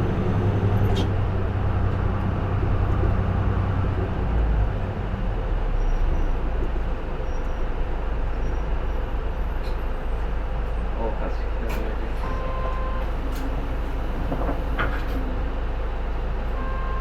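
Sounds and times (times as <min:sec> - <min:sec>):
road and cabin rumble: 0:00.0 - 0:05.6, 0:09.6 - 0:17.0
bus diesel engine under load: 0:00.0 - 0:17.0.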